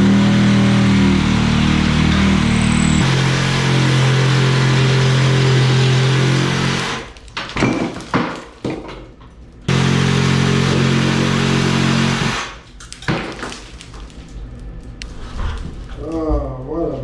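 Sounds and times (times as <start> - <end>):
power tool cutting: 0.0 - 7.2, 9.7 - 12.6.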